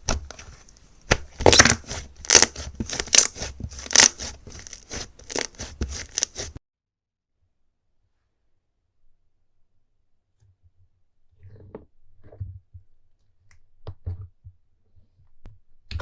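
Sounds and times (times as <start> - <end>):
crunchy slime squeezed by hand: 1.2 - 6.5.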